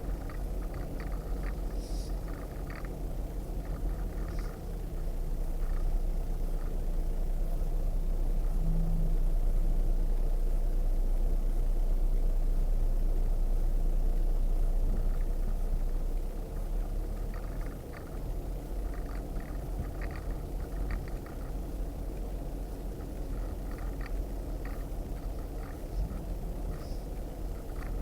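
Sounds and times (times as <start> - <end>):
small clicks and knocks: 0.0 - 3.0, 17.2 - 21.6, 23.0 - 28.0
vehicle engine deep rumble: 0.0 - 28.0.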